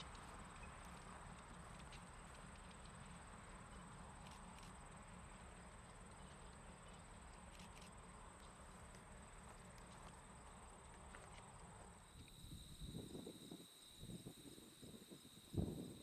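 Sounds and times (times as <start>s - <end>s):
faint ticks: 5.9s - 12.4s.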